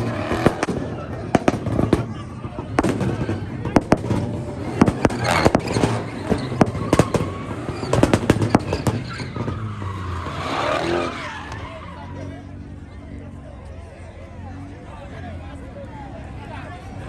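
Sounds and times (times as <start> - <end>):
sharp pops and bangs: 0.0 - 10.0
tire squeal: 0.0 - 13.4
car engines running: 0.0 - 17.0.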